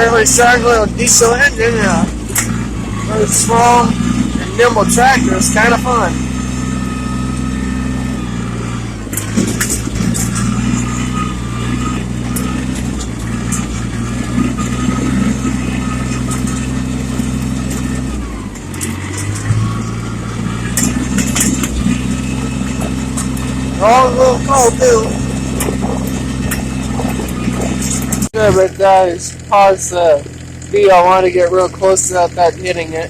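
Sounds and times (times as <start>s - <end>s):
high whine: 0.0s - 33.0s
tractor diesel engine running: 0.0s - 33.0s
clanks and rattles: 2.0s - 3.1s, 8.4s - 23.6s.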